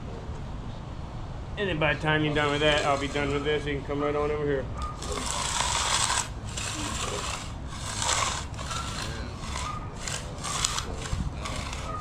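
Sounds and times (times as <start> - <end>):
tool scraping wet concrete: 2.2 - 3.8, 4.8 - 12.0.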